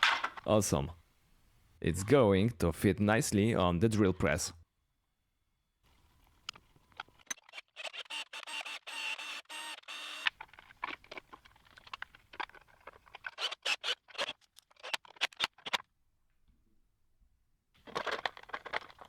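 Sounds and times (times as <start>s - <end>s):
plastic clicks and scrapes: 6.4s - 8.9s, 9.6s - 15.9s, 17.8s - 19.0s.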